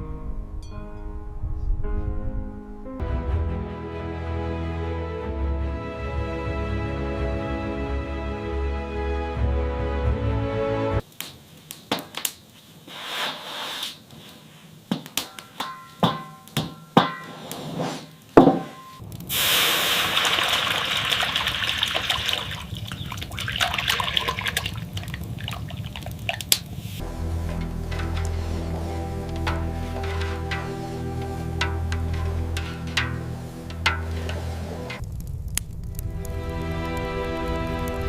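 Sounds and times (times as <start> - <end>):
objects knocking and clinking: 15.2 - 17.3
running water: 19.3 - 35.0.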